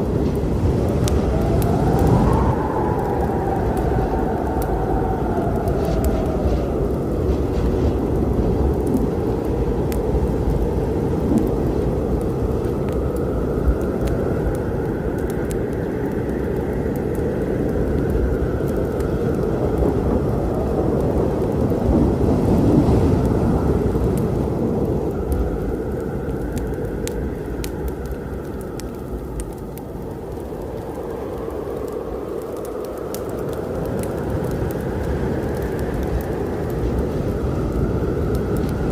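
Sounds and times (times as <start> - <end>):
rolling thunder: 0.0 - 14.7
storm rain: 0.0 - 38.9
wood fire crackling: 0.0 - 38.9.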